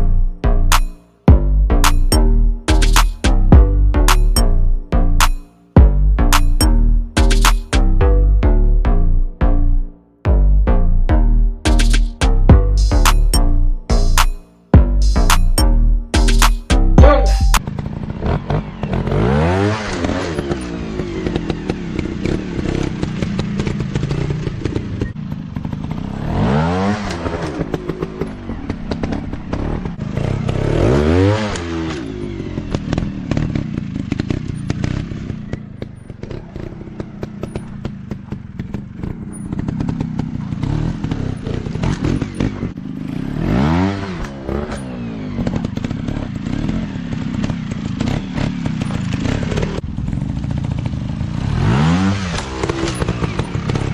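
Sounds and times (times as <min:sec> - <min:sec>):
dirt bike engine revving: 0:11.7 - 0:53.9.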